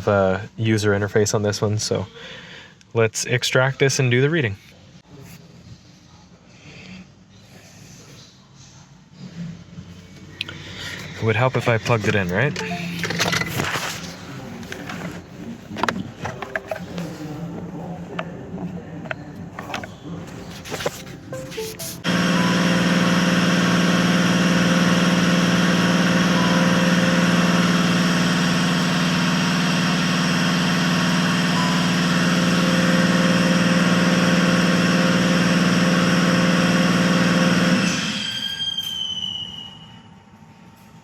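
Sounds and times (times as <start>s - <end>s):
electric motor hum and whine: 22.0s - 38.5s.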